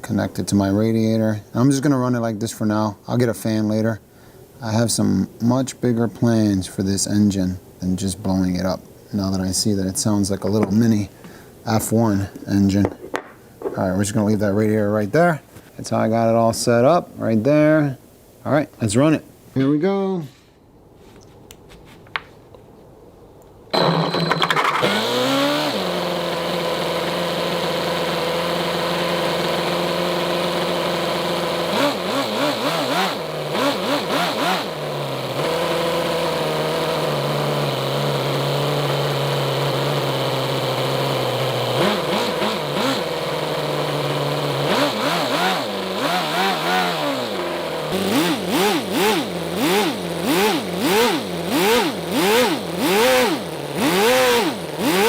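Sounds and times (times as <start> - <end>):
model engine running and revving: 23.8 - 55.0.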